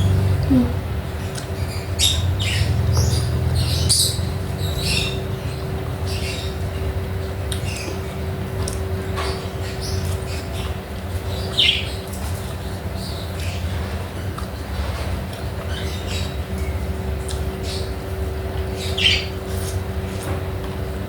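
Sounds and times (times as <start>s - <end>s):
steady low hum: 0.0s - 21.0s
wet chewing: 16.6s - 17.5s.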